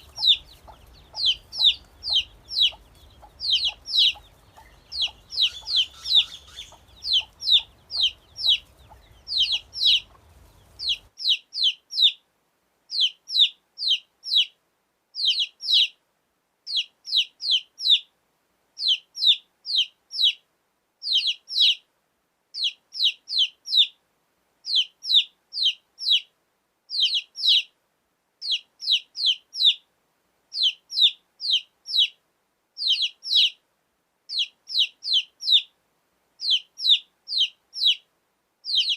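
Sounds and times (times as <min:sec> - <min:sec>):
baby chicks peeping: 0:00.0 - 0:12.2, 0:12.9 - 0:14.5, 0:15.2 - 0:16.0, 0:16.7 - 0:18.1, 0:18.8 - 0:20.4, 0:21.0 - 0:21.8, 0:22.6 - 0:24.0, 0:24.7 - 0:26.3, 0:26.9 - 0:27.7, 0:28.4 - 0:29.8, 0:30.5 - 0:32.2, 0:32.8 - 0:33.6, 0:34.3 - 0:35.7, 0:36.4 - 0:38.0, 0:38.6 - 0:38.9.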